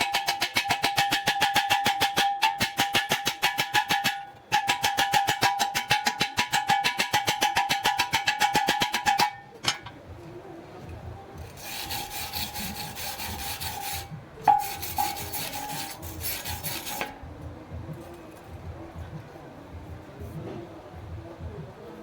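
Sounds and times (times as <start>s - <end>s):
rasping scraping on metal: 0.0s - 10.0s, 11.4s - 17.2s.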